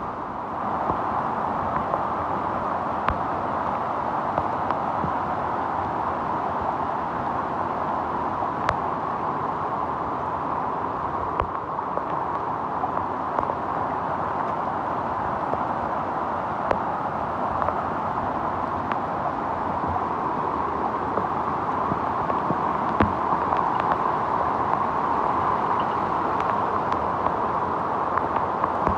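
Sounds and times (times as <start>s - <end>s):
heavy rain rushing: 8.4s - 28.9s.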